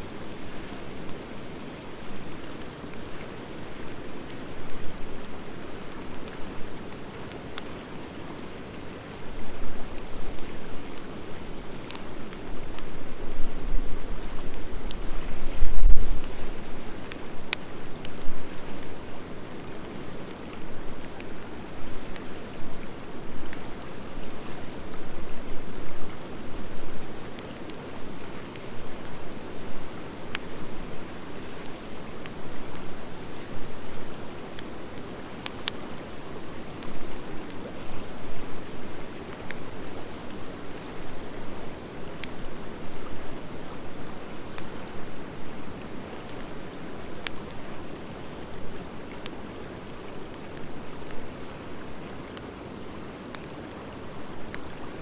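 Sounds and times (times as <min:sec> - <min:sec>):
fire crackling and popping: 0:00.2 - 0:54.9
fire rushing: 0:14.8 - 0:17.2.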